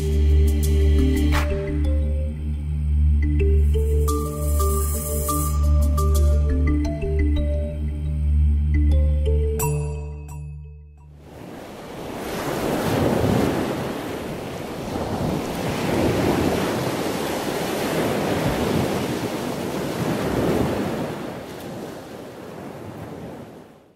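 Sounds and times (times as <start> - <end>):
waves breaking: 11.2 - 23.9.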